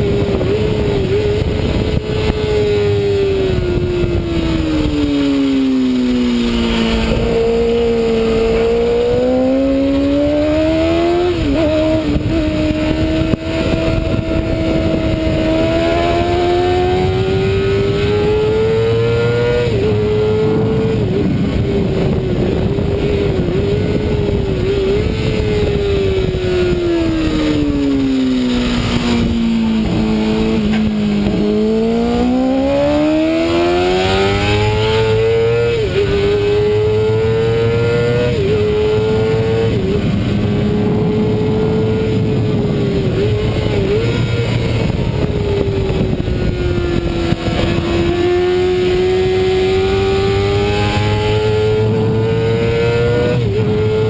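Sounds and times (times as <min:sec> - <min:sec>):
motorbike engine at high revs: 0:00.0 - 0:54.0
wind rush: 0:00.0 - 0:54.0.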